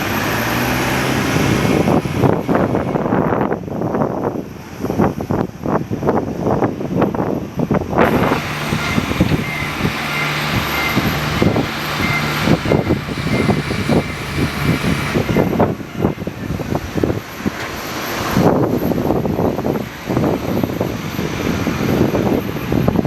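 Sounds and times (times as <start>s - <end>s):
high whine: 0.0s - 4.6s, 7.0s - 23.0s
engine hum: 0.0s - 23.0s
gusty wind buffeting microphone: 0.0s - 23.0s.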